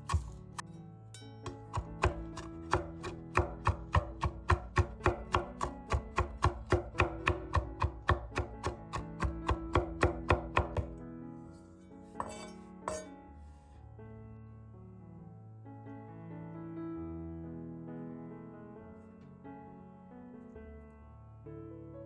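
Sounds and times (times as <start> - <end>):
knife chopping on cutting board: 0.0 - 0.6, 1.5 - 11.0
background music: 0.0 - 14.0.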